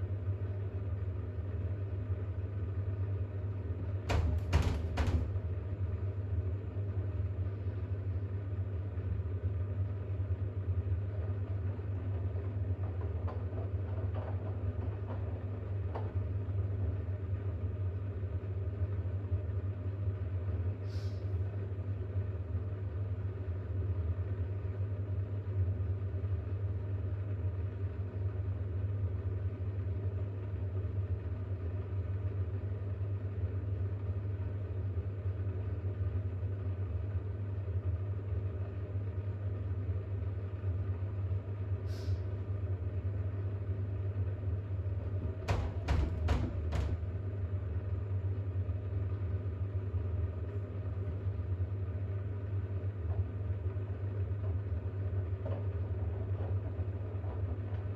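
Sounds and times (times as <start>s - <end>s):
washing machine humming: 0.0s - 20.8s, 27.8s - 57.9s
washing machine knocks: 3.9s - 5.7s, 44.8s - 47.4s.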